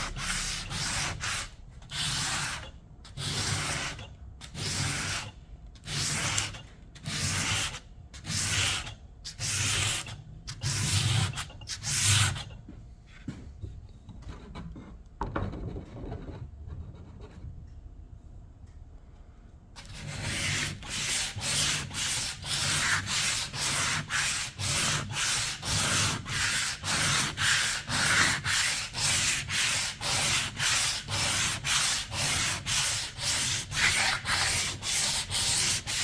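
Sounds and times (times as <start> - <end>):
sandpaper rubbing strokes: 19.8 - 36.0.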